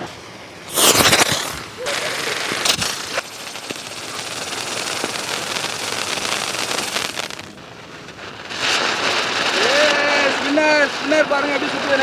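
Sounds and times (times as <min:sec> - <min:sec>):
fountain firework hissing and crackling: 0:00.0 - 0:12.0.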